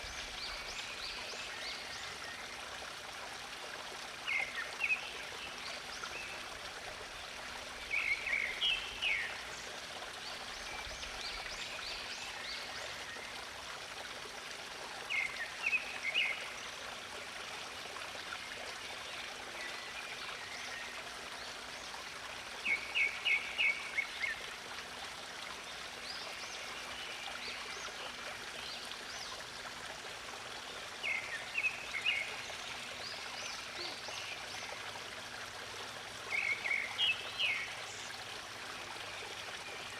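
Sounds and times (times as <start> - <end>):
songbird singing: 7.9 - 9.4, 36.3 - 38.1.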